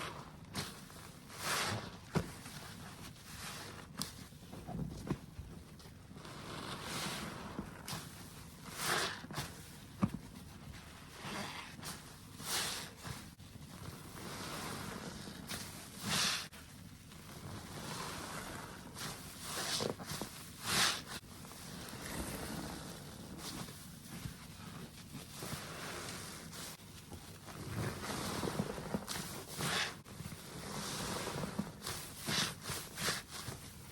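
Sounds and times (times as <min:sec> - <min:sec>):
soapy sponge squelching: 0:00.0 - 0:04.6, 0:05.8 - 0:33.9.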